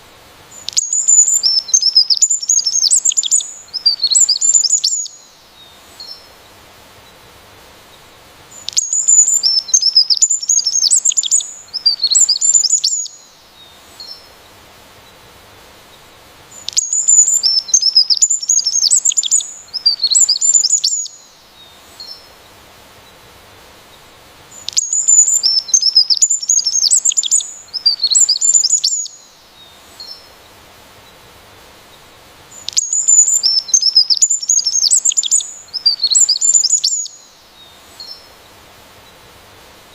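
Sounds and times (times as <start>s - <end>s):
faint steady hiss: 0.0s - 39.9s
bird twittering: 0.6s - 5.2s, 8.6s - 13.2s, 16.6s - 21.2s, 24.6s - 29.2s, 32.6s - 37.3s.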